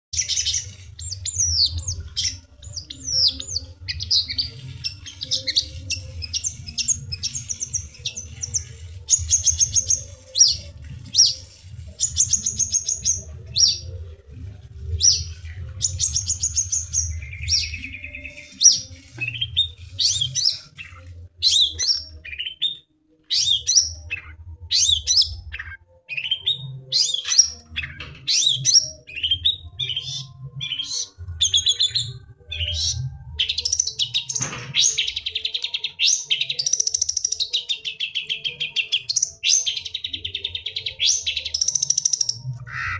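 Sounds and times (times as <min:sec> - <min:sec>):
shrike singing chirps and trills: 0:00.2 - 0:42.9.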